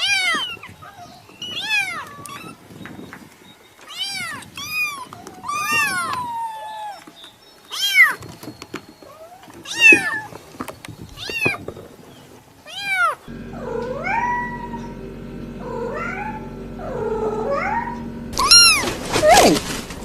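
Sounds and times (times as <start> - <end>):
cat meowing: 0.0 - 2.6, 3.9 - 7.0, 9.2 - 10.3, 12.6 - 14.9, 15.6 - 19.6.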